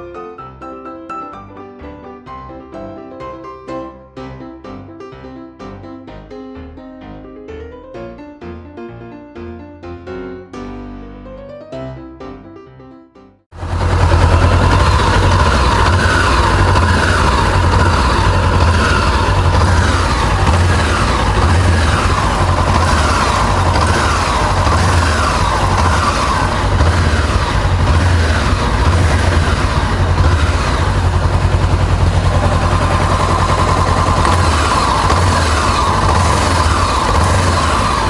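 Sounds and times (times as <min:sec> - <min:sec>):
motorcycle engine revving at idle: 0:13.6 - 0:38.0.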